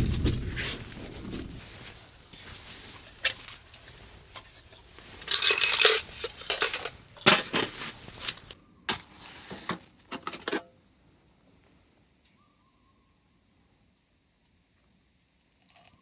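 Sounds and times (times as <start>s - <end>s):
camp cookware clinking and knocking: 3.0s - 8.6s, 10.1s - 10.7s.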